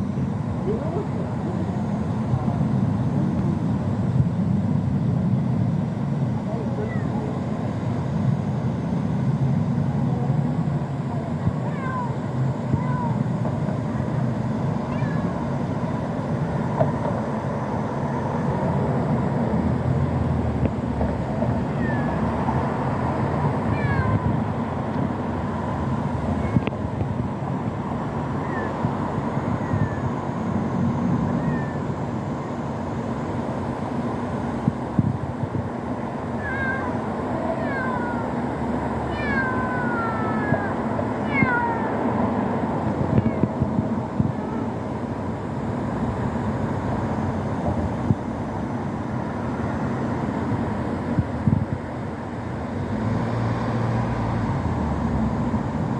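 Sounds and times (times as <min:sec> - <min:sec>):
steady background hiss: 0:00.0 - 0:55.9
kitten meowing: 0:11.6 - 0:13.2, 0:14.8 - 0:15.5, 0:21.7 - 0:22.3, 0:23.7 - 0:24.4, 0:28.4 - 0:28.8, 0:29.5 - 0:30.1, 0:31.3 - 0:31.9, 0:36.4 - 0:38.4, 0:39.1 - 0:42.0, 0:43.1 - 0:43.6.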